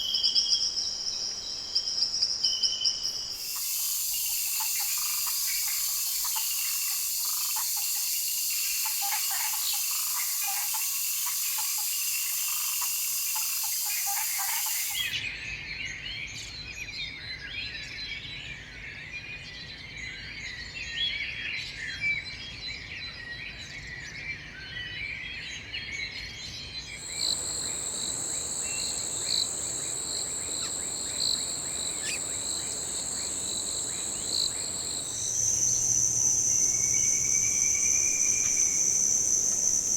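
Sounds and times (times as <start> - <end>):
high-pitched insect trill: 0.0 - 15.2, 27.0 - 39.9
small birds chirping: 0.0 - 15.2, 26.9 - 39.9
high insect drone: 1.2 - 15.2, 27.0 - 39.9
bird calls: 2.7 - 15.2, 27.0 - 39.9.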